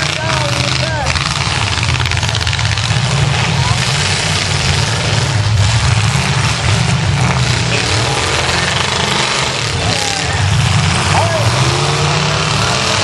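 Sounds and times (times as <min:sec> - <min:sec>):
car engines running: 0:00.0 - 0:13.0.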